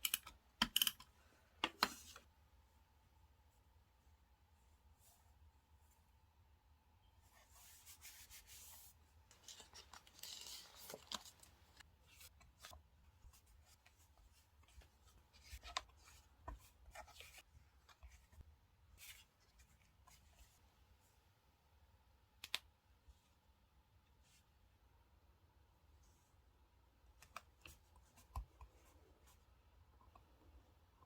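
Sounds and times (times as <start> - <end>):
paper and stickers rustling: 9.3 - 12.8.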